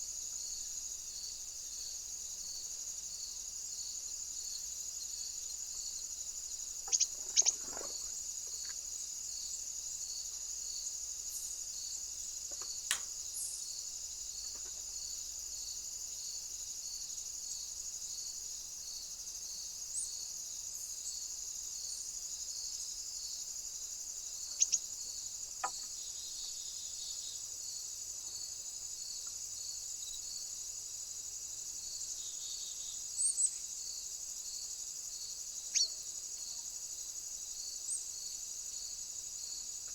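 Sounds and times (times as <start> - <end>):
crickets chirping chorus: 0.0 - 39.9.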